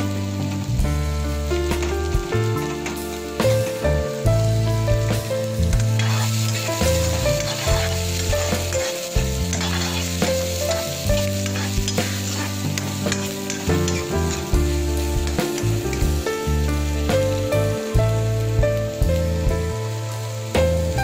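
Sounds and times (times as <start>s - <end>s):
background music with bass: 0.0s - 21.0s
vegetables sizzling in oil: 0.0s - 21.0s
steel spoon scraping pan: 5.8s - 14.4s.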